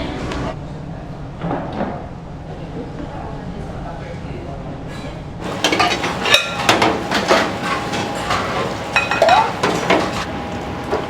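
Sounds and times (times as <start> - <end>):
dishes and utensils clattering: 5.4 - 10.3.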